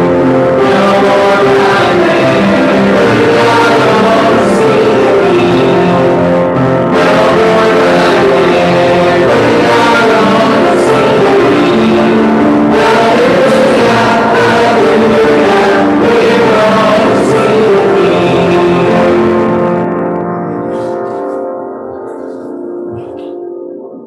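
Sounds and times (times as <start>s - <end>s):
congregation singing a hymn: 0.0s - 20.0s
instrumental accompaniment: 0.0s - 24.0s.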